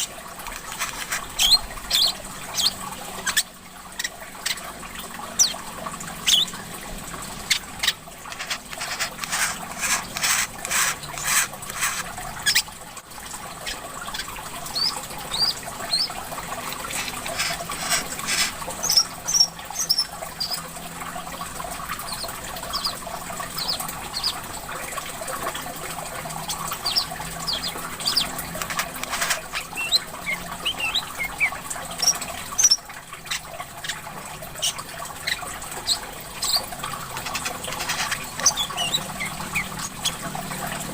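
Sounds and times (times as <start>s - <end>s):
water trickling: 0.0s - 40.9s
songbirds chirping: 26.4s - 40.2s.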